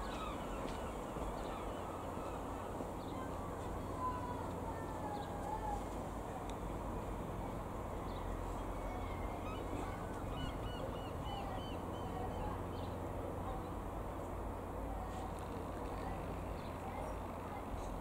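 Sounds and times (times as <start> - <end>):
birds calling: 0.0 - 4.4, 8.0 - 13.0
low outdoor rumble: 0.0 - 18.0.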